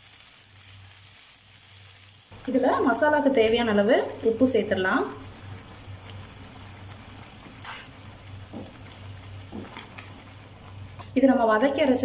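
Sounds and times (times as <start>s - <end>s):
paste sizzling in oil: 0.0s - 12.0s
wooden spatula knocks and scrapes: 8.4s - 10.1s.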